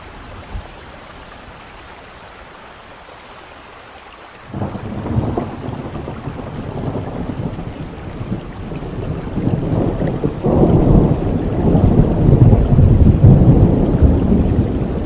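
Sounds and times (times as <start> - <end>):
steady rain: 0.0 - 15.0
rolling thunder: 4.5 - 15.0.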